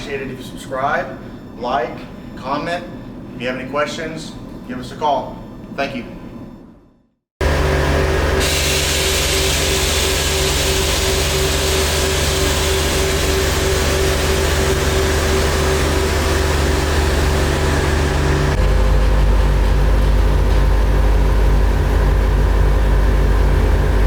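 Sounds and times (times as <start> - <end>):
vehicle engine running: 7.4 - 24.0.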